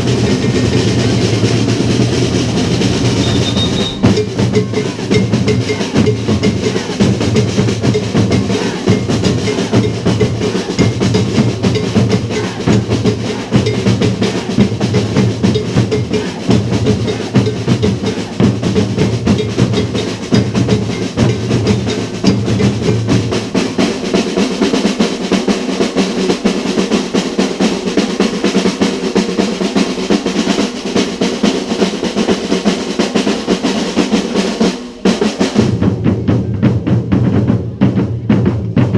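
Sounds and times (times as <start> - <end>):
deep bass drums: 0.0 - 23.5
snare drum rolls: 0.0 - 38.9.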